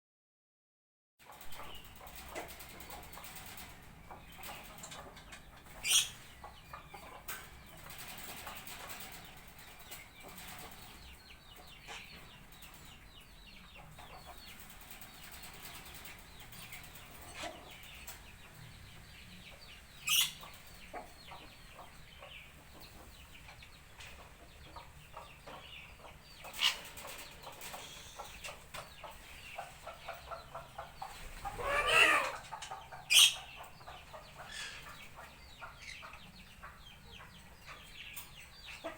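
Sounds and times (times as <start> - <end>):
parrots squawking and chattering: 20.0 - 20.4, 31.2 - 33.5, 34.4 - 34.9.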